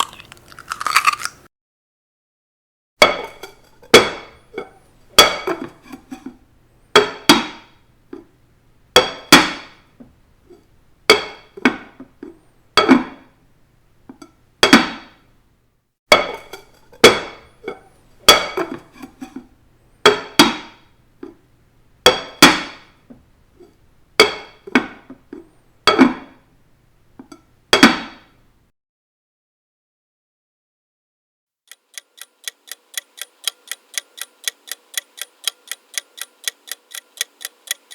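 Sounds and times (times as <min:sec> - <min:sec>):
kitchen implement striking hard surface: 0:03.0 - 0:08.2, 0:09.0 - 0:09.8, 0:16.1 - 0:19.4.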